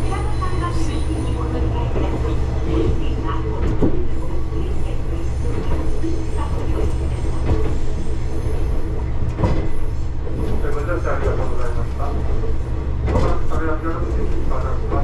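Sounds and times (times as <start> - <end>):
diesel railcar rumbling: 0.0 - 15.0
sharp rail clacks: 13.0 - 15.0.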